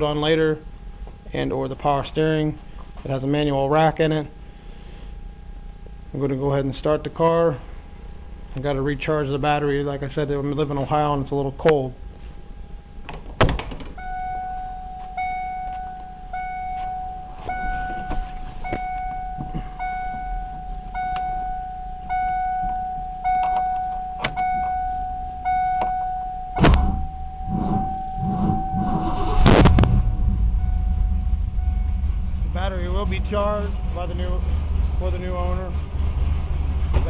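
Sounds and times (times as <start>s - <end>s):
steady high whine: 0.0s - 37.0s
car engine cranking and starting: 13.0s - 37.0s
dashboard warning chime: 14.0s - 33.8s.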